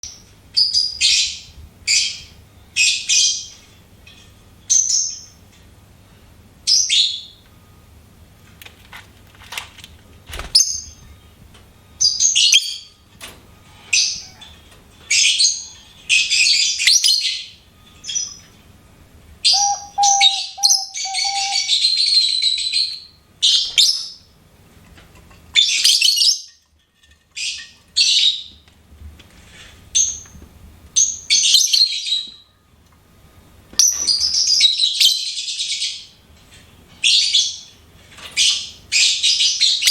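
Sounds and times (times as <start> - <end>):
bird chattering: 19.5 - 21.8
lovebird chirping: 19.5 - 22.0.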